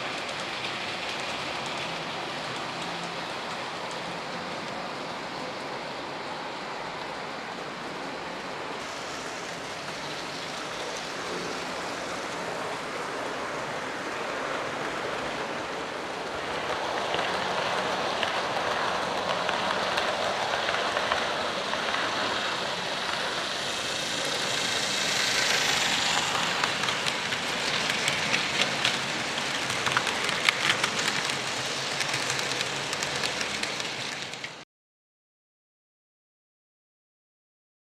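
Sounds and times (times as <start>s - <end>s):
model train motor and wheels hissing: 0.0s - 34.6s
wheels clicking over rail joints: 14.2s - 34.6s.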